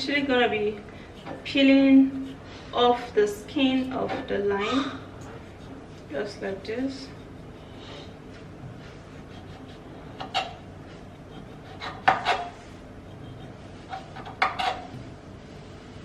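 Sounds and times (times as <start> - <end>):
knife scraping and cutting peel: 9.2 - 14.9.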